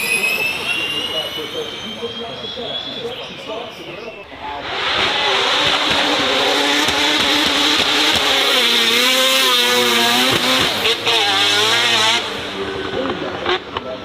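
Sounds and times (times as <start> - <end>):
racing car engine revving: 4.2 - 14.0.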